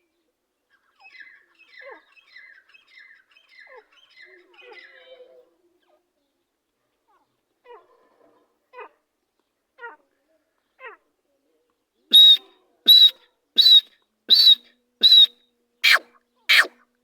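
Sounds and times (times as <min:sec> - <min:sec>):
francolin calling: 0:12.1 - 0:16.7.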